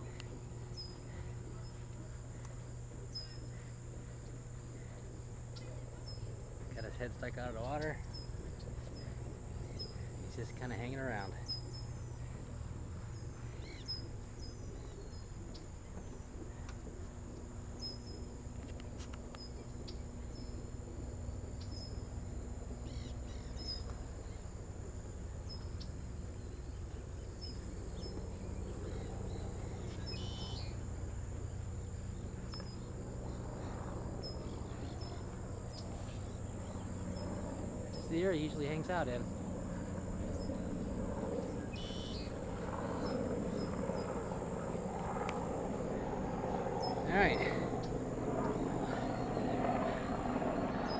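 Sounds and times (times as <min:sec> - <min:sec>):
short insect chirp: 0:00.0 - 0:50.9
high-pitched insect drone: 0:27.4 - 0:50.9.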